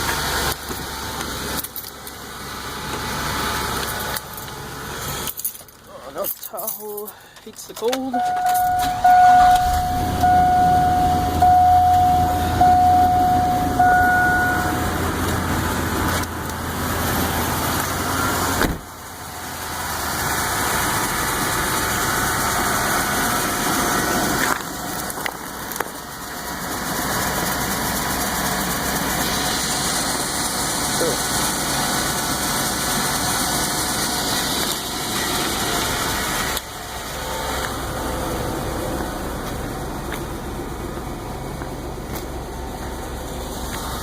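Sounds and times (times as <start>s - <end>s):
car engine running: 0.0s - 44.0s
warning chime: 8.1s - 15.3s.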